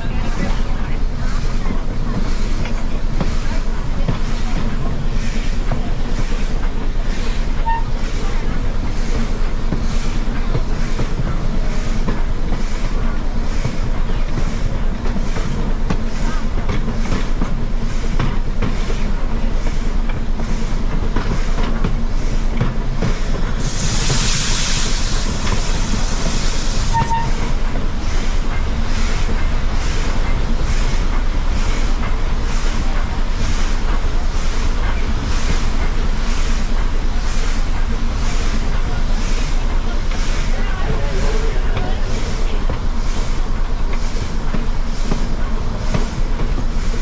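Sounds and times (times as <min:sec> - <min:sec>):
steam train rhythmic rumble: 0:00.0 - 0:47.0
steam hiss: 0:22.2 - 0:47.0.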